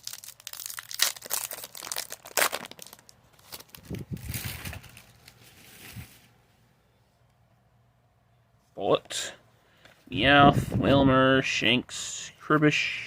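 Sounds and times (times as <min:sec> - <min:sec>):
foil wrapper crinkling and tearing: 0:00.0 - 0:06.2
rustling of wrapper and cards: 0:00.0 - 0:06.4.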